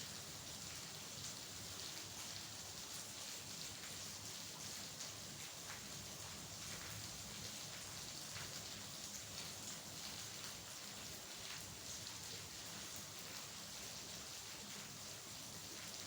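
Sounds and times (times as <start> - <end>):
raindrops ticking on a surface: 0.1 - 16.0.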